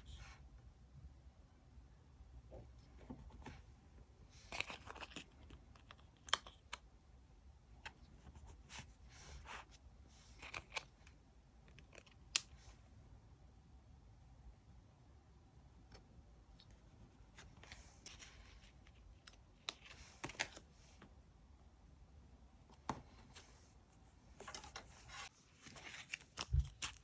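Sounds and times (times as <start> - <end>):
paper rustling: 24.4 - 27.0.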